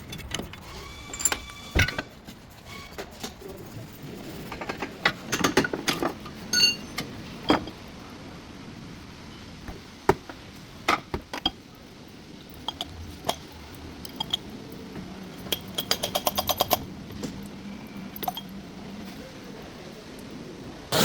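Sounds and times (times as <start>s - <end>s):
metal tools clinking: 0.0s - 2.1s, 5.4s - 7.8s, 14.1s - 14.5s, 15.4s - 16.9s, 18.1s - 18.5s.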